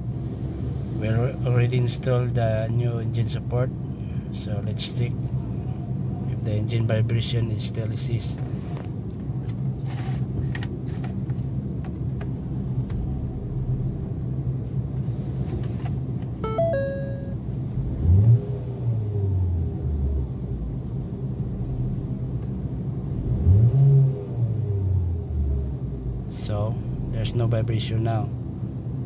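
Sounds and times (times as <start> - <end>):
car engine idling and revving: 0.0 - 29.0
warning chime: 16.4 - 17.5.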